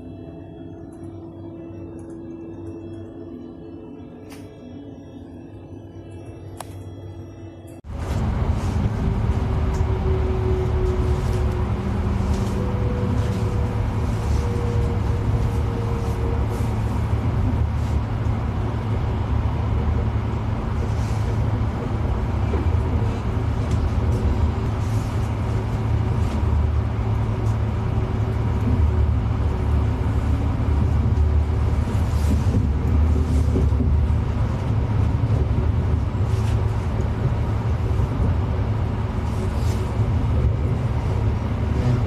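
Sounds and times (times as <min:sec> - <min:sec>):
vehicle rumbling from inside: 0:07.2 - 0:42.0.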